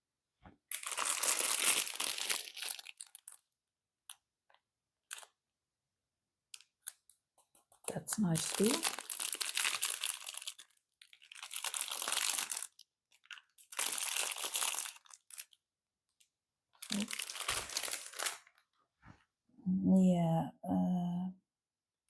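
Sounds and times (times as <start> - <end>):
plastic bags crinkling: 0.7 - 3.4, 7.9 - 15.6, 16.8 - 18.6.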